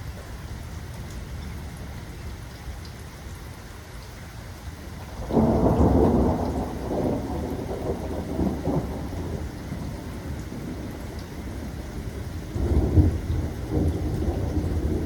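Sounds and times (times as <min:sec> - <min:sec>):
steady rain: 0:00.0 - 0:15.0
thunder rumbling: 0:05.1 - 0:15.0.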